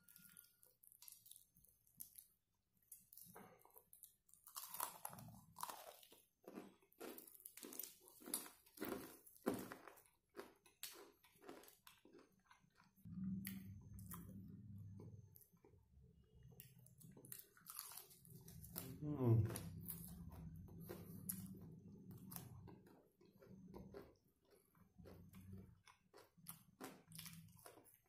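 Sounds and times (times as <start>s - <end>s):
crunching and chewing: 0.0s - 28.0s.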